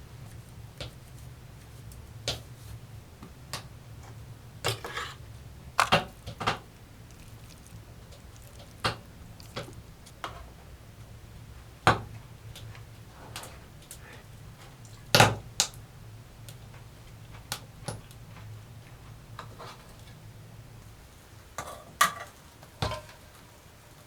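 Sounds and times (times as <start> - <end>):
steady low hum: 0.0 - 21.6
knocks and clicks of objects handled: 5.8 - 10.5.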